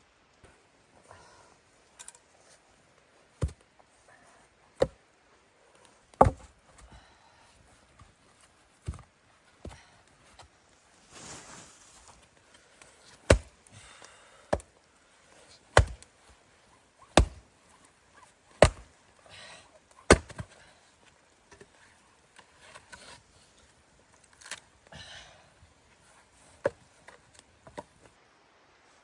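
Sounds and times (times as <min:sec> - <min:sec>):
axe chopping wood: 0:03.4 - 0:03.6, 0:06.1 - 0:06.5, 0:13.1 - 0:13.6, 0:15.7 - 0:16.1, 0:17.0 - 0:17.4, 0:18.5 - 0:19.0, 0:20.0 - 0:20.6.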